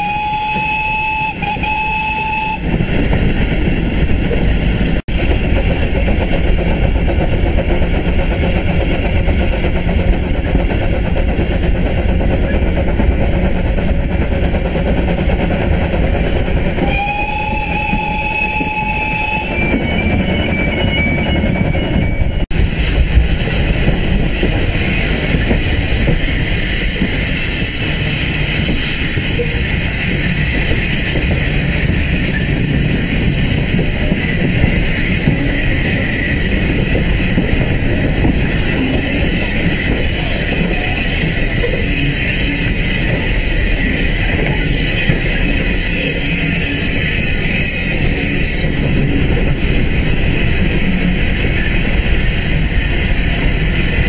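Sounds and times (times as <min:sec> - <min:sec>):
locomotive warning horn: 0:00.0 - 0:02.7, 0:16.8 - 0:19.7
train wheel and running noise: 0:00.0 - 0:54.0.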